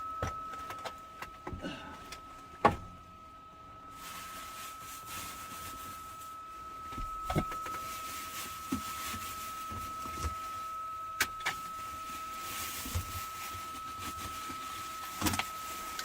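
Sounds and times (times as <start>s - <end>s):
thin high-pitched tone: 0.0s - 2.4s.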